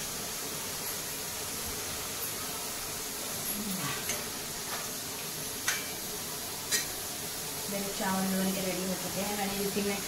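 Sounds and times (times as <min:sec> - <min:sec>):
masala sizzling in oil: 0:00.0 - 0:10.0
metal spoon clicking on pan: 0:05.6 - 0:06.0.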